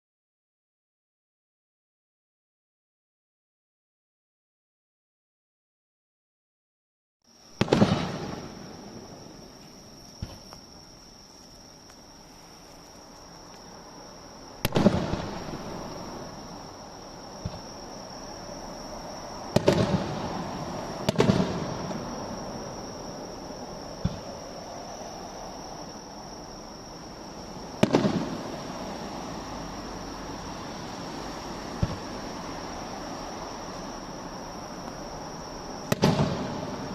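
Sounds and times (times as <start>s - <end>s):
fireworks booming with echo: 7.5s - 10.5s, 14.6s - 16.6s, 17.3s - 17.7s, 19.5s - 22.8s, 24.0s - 24.4s, 27.7s - 28.8s, 31.8s - 32.1s, 35.8s - 36.9s
small firework pops: 7.6s - 8.8s, 9.6s - 10.7s, 14.6s - 15.9s, 17.4s - 17.7s, 19.5s - 20.2s, 21.0s - 22.1s, 24.0s - 24.4s, 27.8s - 28.4s, 31.8s - 32.0s, 35.9s - 36.9s.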